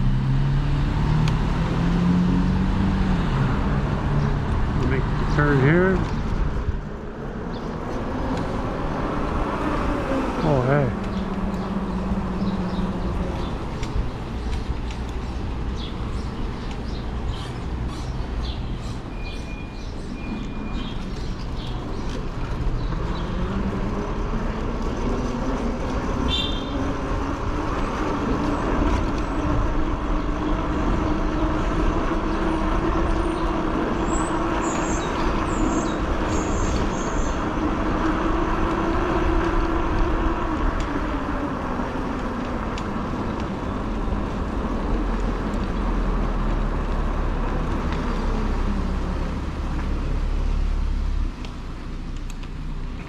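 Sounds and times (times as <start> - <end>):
wind and tyre noise: 0.0 - 53.0.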